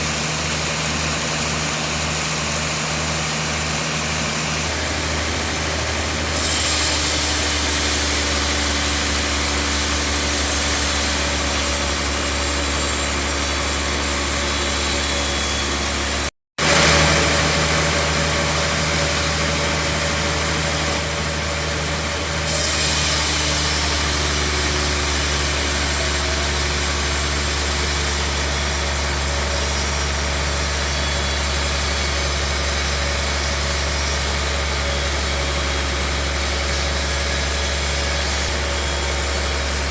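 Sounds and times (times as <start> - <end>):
low motor hum: 0.0 - 22.5
sawmill machinery hissing: 0.0 - 39.9.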